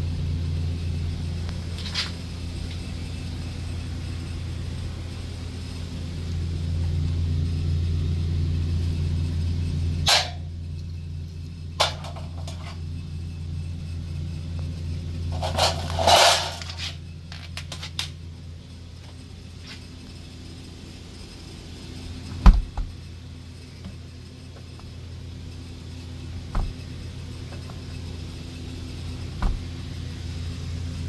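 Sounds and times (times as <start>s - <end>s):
steady low hum: 0.0s - 31.0s
sharp thump: 26.5s - 26.8s, 29.4s - 29.7s.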